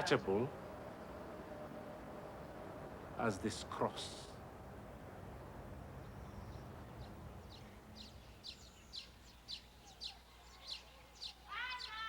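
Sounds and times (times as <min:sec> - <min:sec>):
bird chirping: 0:00.0 - 0:03.9, 0:05.2 - 0:12.0
faint low background noise: 0:00.0 - 0:12.0.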